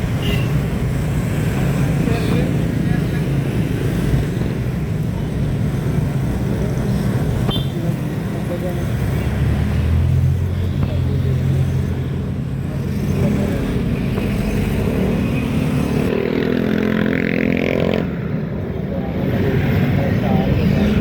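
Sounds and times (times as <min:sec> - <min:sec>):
traffic noise: 0:00.0 - 0:21.0.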